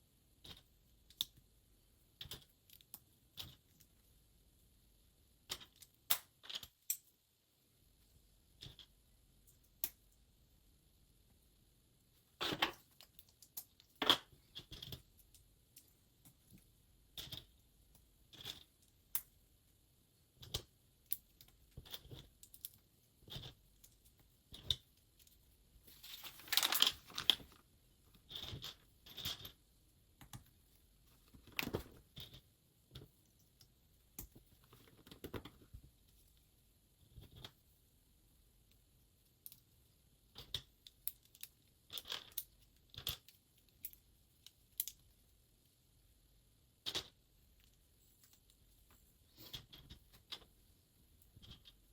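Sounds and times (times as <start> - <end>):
small plastic clicks and rattles: 0.4 - 1.5, 2.1 - 4.0, 5.4 - 7.2, 8.5 - 10.2, 12.3 - 19.4, 20.3 - 25.4, 26.0 - 29.6, 30.2 - 36.4, 38.7 - 45.2, 46.8 - 50.6, 51.2 - 51.9
rustling through plastic pieces: 25.8 - 28.8.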